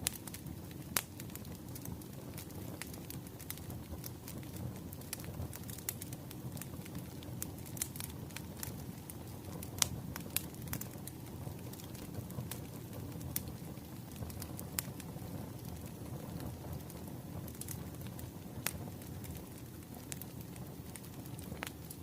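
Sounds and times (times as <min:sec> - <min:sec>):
bonfire crackling: 0:00.0 - 0:22.0.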